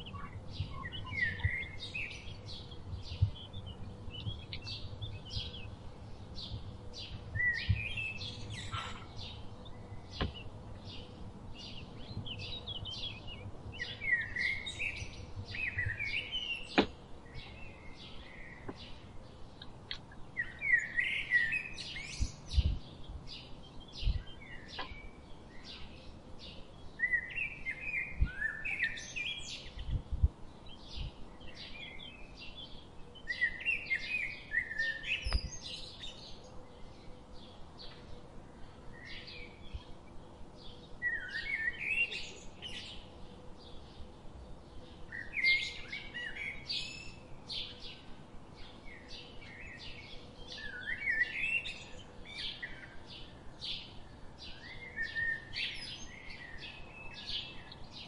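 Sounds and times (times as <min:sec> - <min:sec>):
birds chirping and calling: 0:00.0 - 0:58.0.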